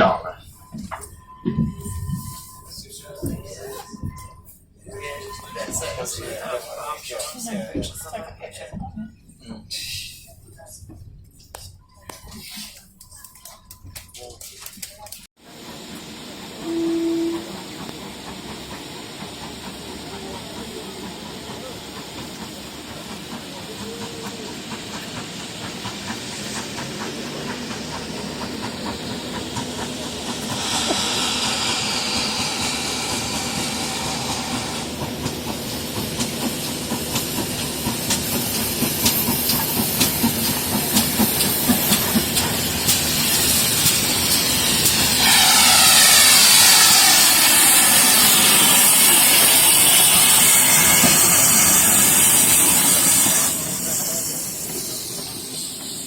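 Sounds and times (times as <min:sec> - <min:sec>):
steam locomotive hissing: 0:09.7 - 0:10.6, 0:15.5 - 0:56.0.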